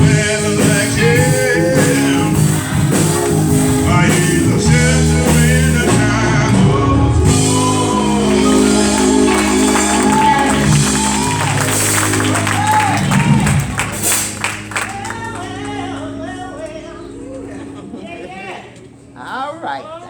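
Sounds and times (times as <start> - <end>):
voices singing: 0.0 - 13.4
sustained instrumental chords: 0.0 - 19.5.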